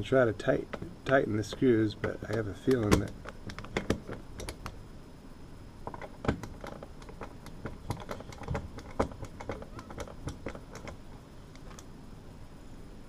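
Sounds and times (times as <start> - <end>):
metal register clicks and knocks: 0.7 - 4.8, 5.9 - 11.0.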